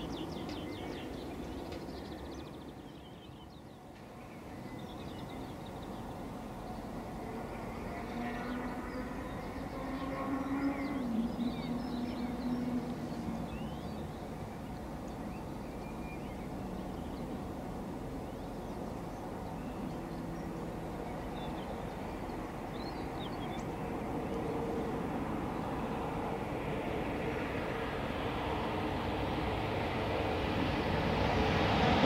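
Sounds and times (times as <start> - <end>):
distant train rumble: 0.0 - 32.0
small birds chirping: 8.4 - 17.6, 18.2 - 24.1.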